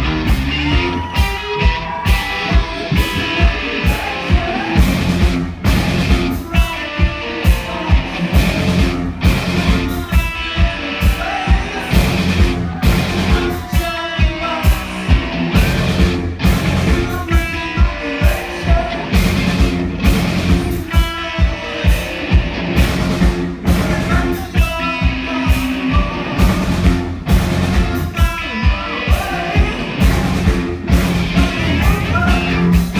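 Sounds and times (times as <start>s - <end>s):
driving drum beat: 0.0s - 32.9s
electric guitar: 0.0s - 32.9s
rock band playing: 0.0s - 32.9s.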